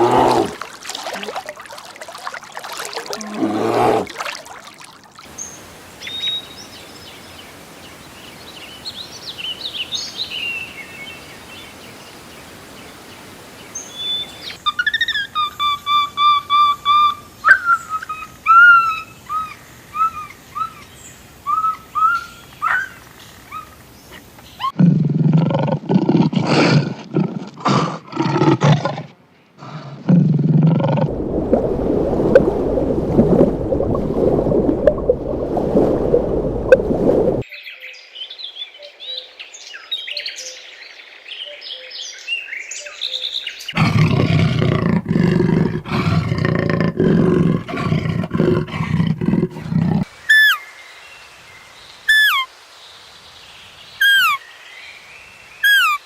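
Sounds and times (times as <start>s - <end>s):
bird chirping: 5.4s - 18.2s.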